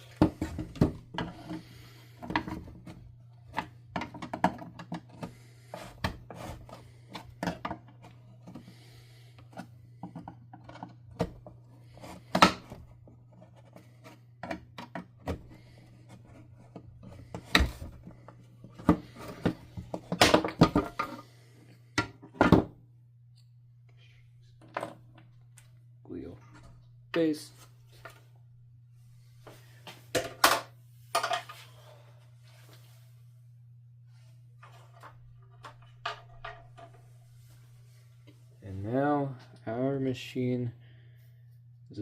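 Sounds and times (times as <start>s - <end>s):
faint low hum: 0.0s - 42.0s
plastic parts clicking and knocking: 2.2s - 8.6s, 9.4s - 11.6s, 12.2s - 21.2s.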